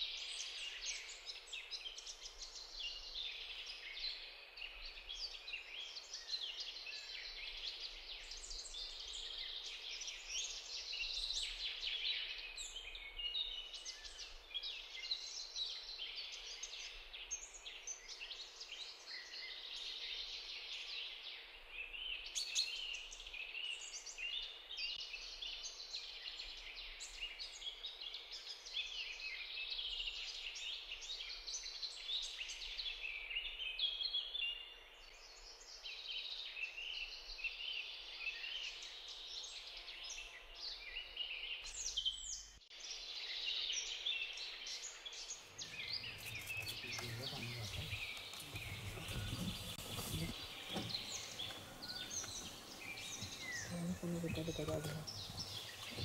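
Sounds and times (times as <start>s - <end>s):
wild birds chirping and calling: 41.6s - 56.0s.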